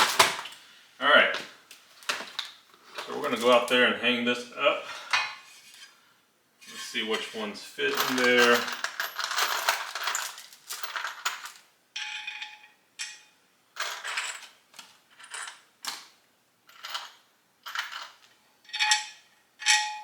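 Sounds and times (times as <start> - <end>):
metal screws clinking: 7.8 - 14.5, 16.7 - 20.0.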